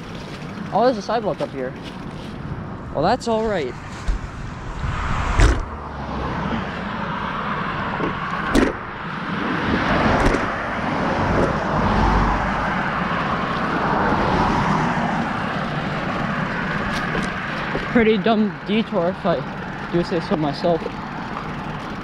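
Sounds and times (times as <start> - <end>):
road traffic noise: 0.0 - 22.0
vehicle passing: 0.0 - 22.0
sharp knocks: 8.0 - 8.8.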